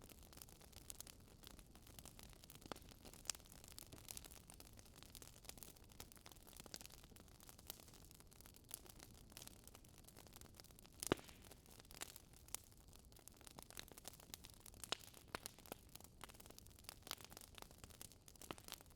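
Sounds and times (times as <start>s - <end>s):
fire crackling: 0.0s - 18.9s.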